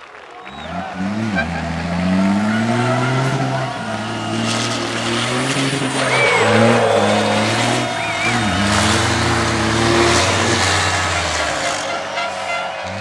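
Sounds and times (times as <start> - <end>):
racing truck engines revving: 0.4 - 13.0
short high squeals: 5.6 - 10.0.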